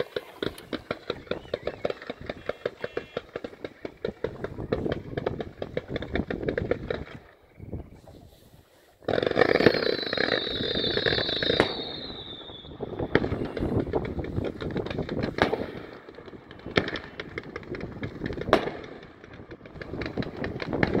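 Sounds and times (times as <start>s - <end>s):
falling firework whistle: 0.0s - 3.3s, 9.3s - 14.0s
firework bangs: 0.0s - 8.0s, 8.9s - 21.0s
firework crackling: 0.0s - 21.0s.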